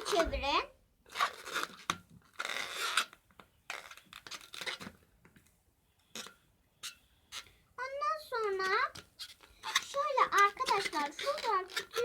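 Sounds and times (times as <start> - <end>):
balloon rubbing and scraping: 0.0 - 5.0, 8.4 - 12.0.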